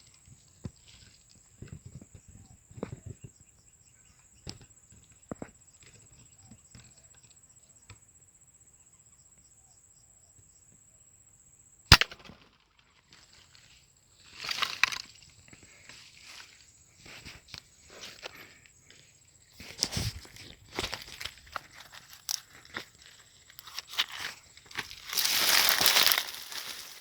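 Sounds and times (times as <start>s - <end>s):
air rifle shot: 11.9s - 12.4s
rustling in undergrowth: 19.4s - 27.0s.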